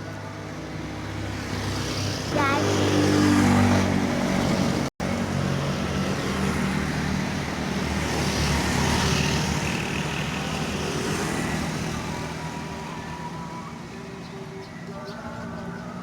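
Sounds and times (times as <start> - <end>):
scooter engine revving: 1.7 - 12.3.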